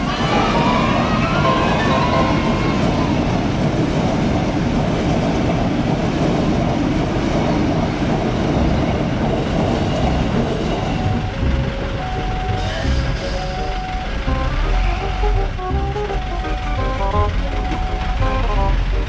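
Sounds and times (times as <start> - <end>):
train wheels rumbling on rails: 0.0 - 19.0
steady crossing tones: 7.8 - 19.0.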